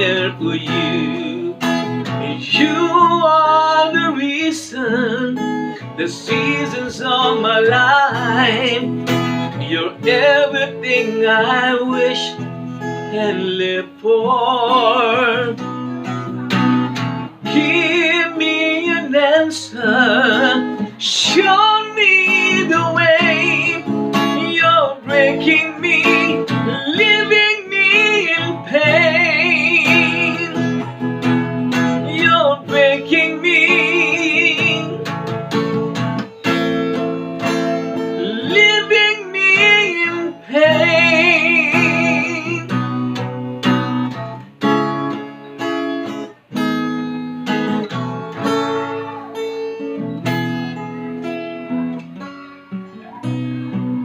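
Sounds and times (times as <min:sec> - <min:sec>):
acoustic guitar: 0:00.0 - 0:54.0
person singing long notes: 0:17.4 - 0:30.9, 0:38.0 - 0:42.7.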